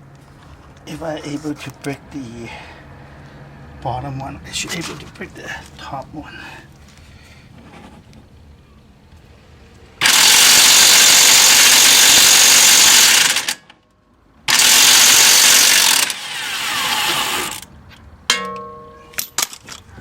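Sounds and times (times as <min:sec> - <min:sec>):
impact wrench hammering: 0:18.3 - 0:19.5
metallic clank with ringing: 0:18.3 - 0:19.6.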